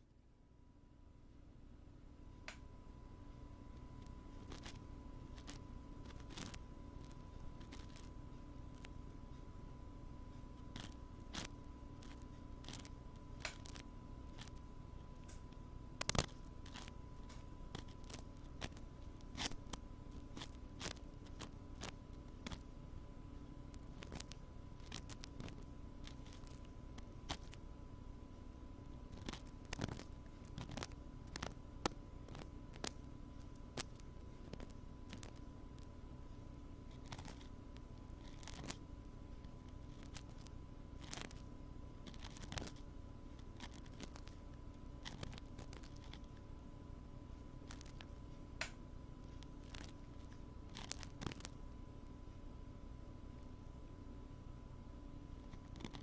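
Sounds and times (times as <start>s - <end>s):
faint steady background hum: 0.0s - 56.0s
ear-cleaning tool scratchy clicks: 3.7s - 9.0s, 10.6s - 22.7s, 23.7s - 27.6s, 28.8s - 35.9s, 36.9s - 46.4s, 47.6s - 51.6s, 55.4s - 56.0s.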